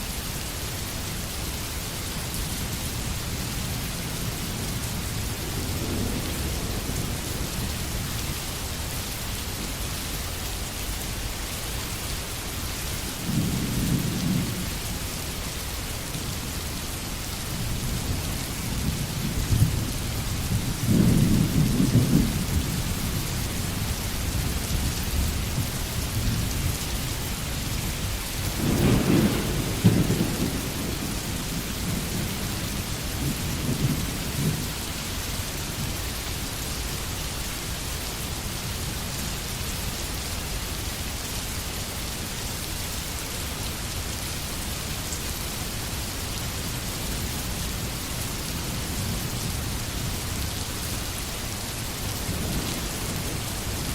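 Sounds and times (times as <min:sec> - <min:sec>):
steady rain: 0:00.0 - 0:53.9
thunder rumbling: 0:05.0 - 0:08.1, 0:17.6 - 0:34.8.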